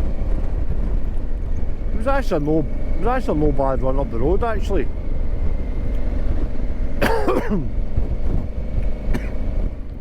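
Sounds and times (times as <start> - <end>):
motorcycle engine rumble: 0.0 - 10.0
wind noise: 0.0 - 10.0
rider coughing: 6.9 - 7.8, 9.0 - 9.5.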